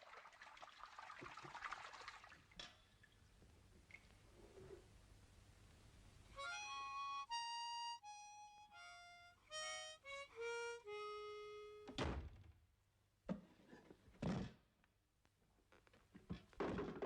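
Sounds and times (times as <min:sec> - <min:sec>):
harmonica cartoon music: 0:06.4 - 0:12.0.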